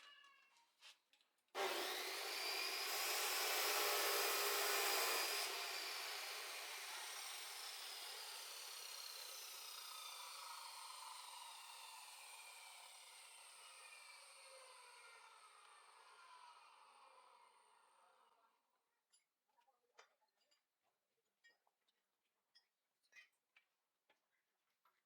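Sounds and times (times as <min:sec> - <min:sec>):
power tool motor whining: 0:01.6 - 0:17.9.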